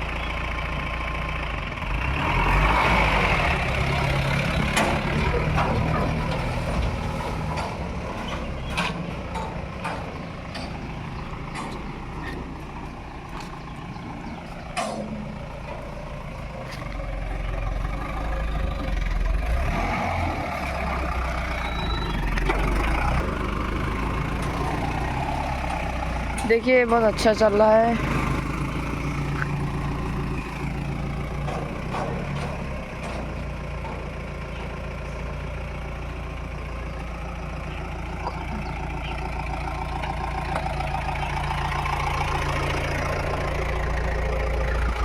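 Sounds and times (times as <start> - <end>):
truck engine running: 0.0 - 45.0
sharp knocks and rattles: 4.4 - 19.5, 29.0 - 35.7.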